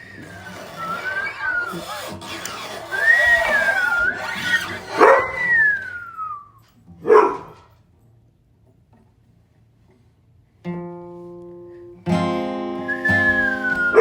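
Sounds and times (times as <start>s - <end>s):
high gliding tone: 0.0s - 6.2s
strummed acoustic guitar chords: 10.7s - 14.0s.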